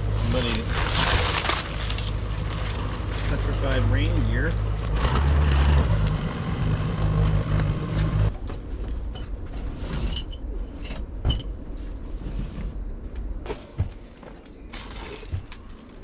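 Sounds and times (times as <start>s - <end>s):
low motor drone: 2.0s - 8.6s.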